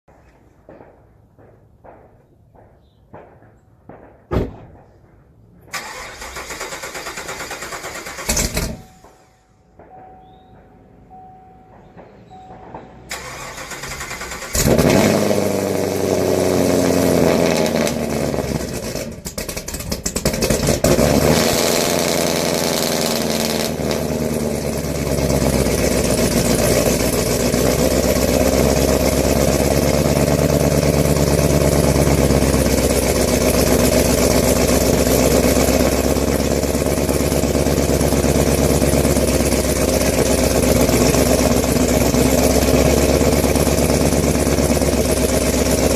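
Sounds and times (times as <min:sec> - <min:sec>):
car engine idling: 0:05.8 - 0:45.9.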